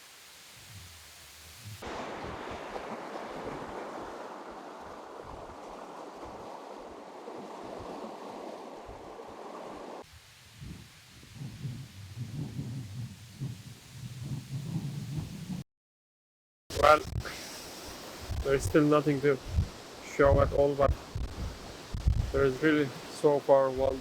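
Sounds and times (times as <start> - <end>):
wind: 0.0 - 15.6, 16.7 - 24.0
waves on shore: 1.7 - 10.4, 16.7 - 24.0.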